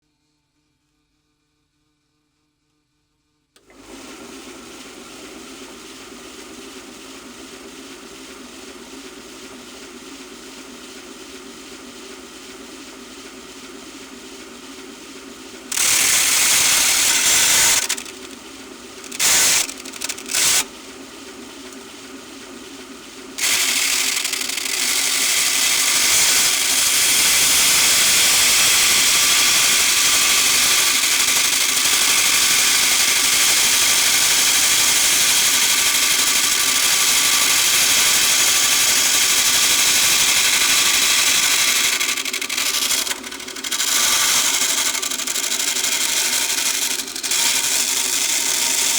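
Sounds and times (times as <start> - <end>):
pen grinding on sander belt: 15.7 - 18.4, 19.0 - 20.7, 23.4 - 48.9
belt sander humming: 15.7 - 20.7, 23.3 - 48.9.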